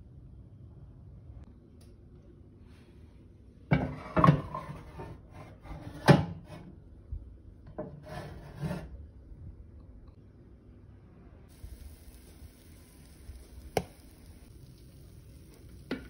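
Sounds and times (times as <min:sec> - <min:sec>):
baking dish scraping on oven rack: 0:03.7 - 0:06.7, 0:07.8 - 0:09.0.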